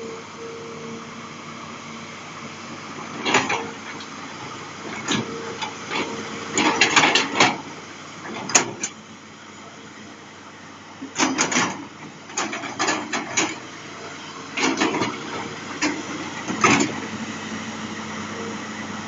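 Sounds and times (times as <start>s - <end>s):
faint whine: 0.0s - 6.7s
excavator diesel engine running: 0.0s - 19.0s
metallic clunks and rattles: 5.9s - 7.6s, 11.2s - 13.6s, 14.6s - 17.0s.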